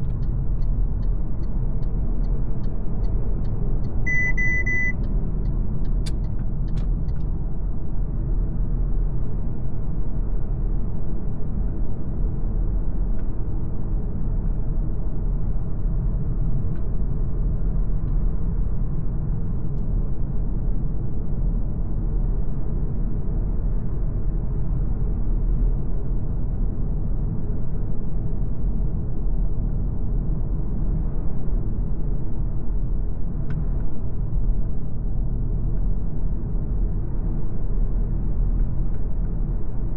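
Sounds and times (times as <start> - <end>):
low road and drivetrain rumble: 0.0 - 39.9.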